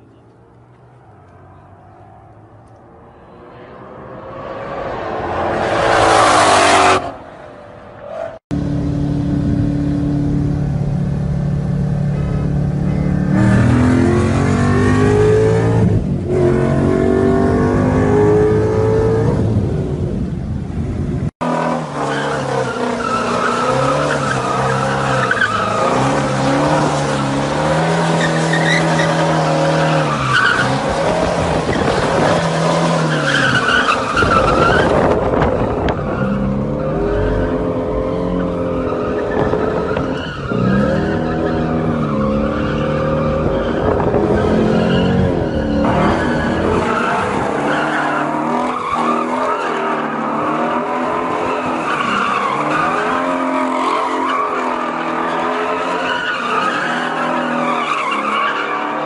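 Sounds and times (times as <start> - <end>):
car engines revving: 0.0 - 59.0
tire squeal: 8.0 - 8.4, 21.9 - 59.0.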